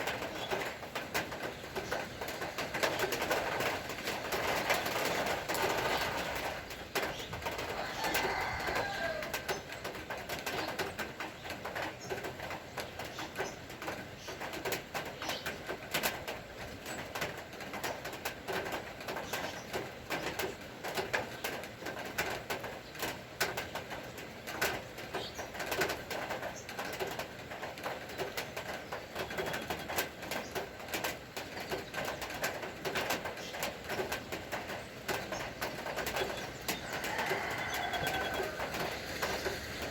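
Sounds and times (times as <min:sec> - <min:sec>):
raindrops ticking: 0:00.0 - 0:39.9
steady rain hiss: 0:00.0 - 0:39.9
birds calling: 0:27.9 - 0:39.9.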